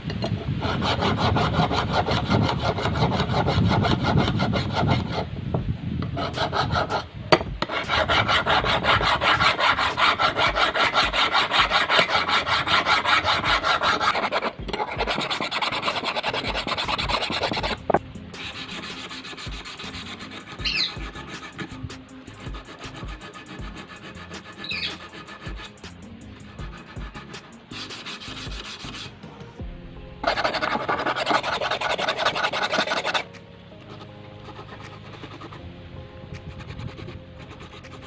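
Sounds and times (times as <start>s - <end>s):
abrasive rubbing on metal: 6.1s - 29.2s, 30.2s - 35.6s, 36.4s - 38.0s.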